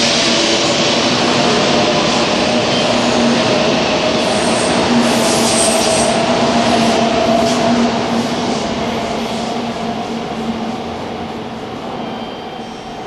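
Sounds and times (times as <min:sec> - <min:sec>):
rumble of train wheels on rail: 0:00.0 - 0:13.0
faint high squeals: 0:11.9 - 0:13.0.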